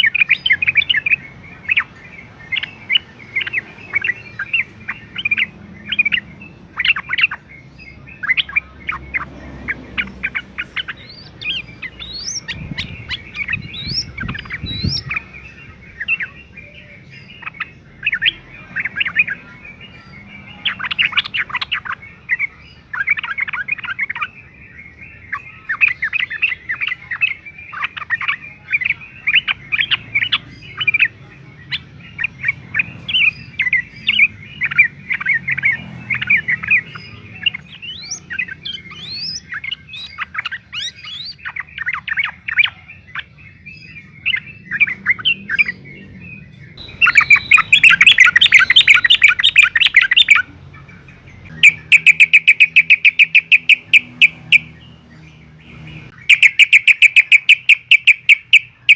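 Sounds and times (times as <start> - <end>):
bird singing and chattering: 0.0 - 58.9
rising whistled bird notes: 43.8 - 50.4, 51.5 - 54.8, 56.1 - 58.9.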